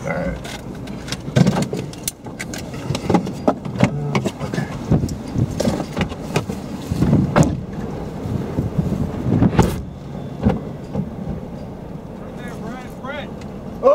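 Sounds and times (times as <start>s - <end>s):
low vehicle rumble: 0.0s - 13.9s
irregular knocks and clatter: 0.4s - 7.9s, 10.4s - 11.8s.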